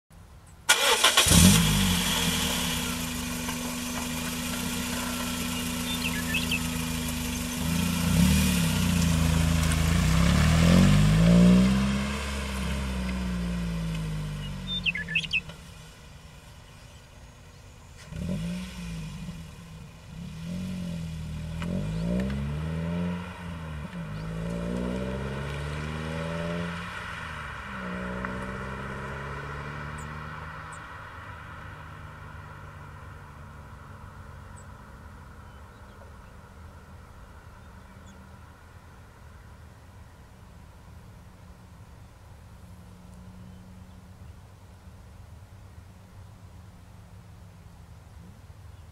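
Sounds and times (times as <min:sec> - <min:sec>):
car engine starting and revving: 0:00.6 - 0:36.6.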